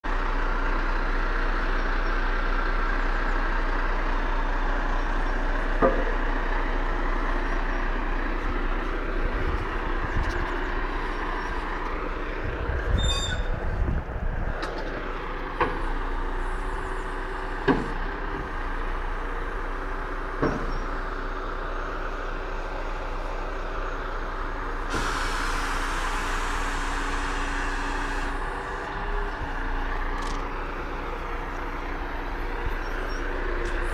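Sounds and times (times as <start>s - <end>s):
truck engine running: 0.0s - 33.9s
hissing air burst: 24.9s - 28.4s.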